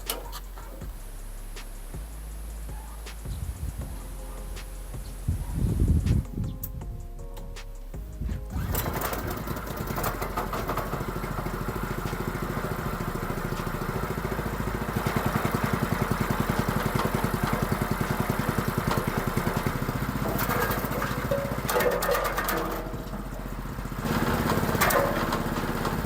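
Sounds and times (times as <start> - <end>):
petrol engine running: 8.5 - 26.0.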